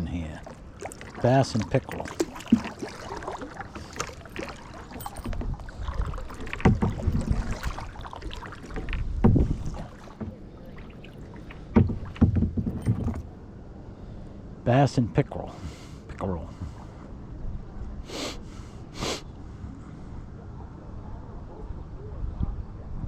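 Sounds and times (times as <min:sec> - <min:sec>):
paddle dipping through water: 0:00.0 - 0:13.4, 0:15.5 - 0:17.2.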